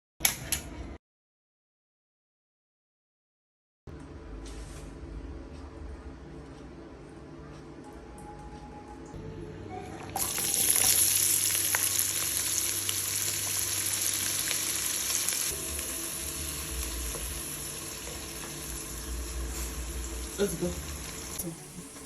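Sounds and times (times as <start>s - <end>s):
food sizzling in hot oil: 10.2s - 22.0s.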